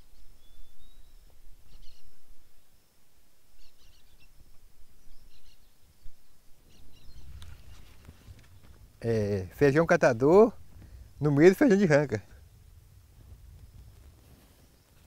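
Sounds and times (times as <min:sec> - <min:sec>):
small birds chirping: 0:00.0 - 0:02.8, 0:03.4 - 0:15.0
steady low rumble: 0:07.1 - 0:14.9.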